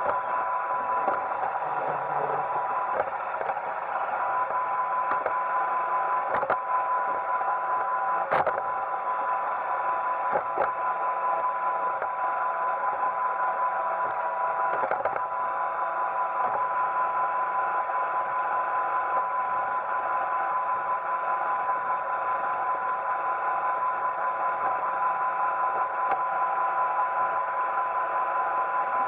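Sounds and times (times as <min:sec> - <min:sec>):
robot vacuum running: 0:00.0 - 0:03.5.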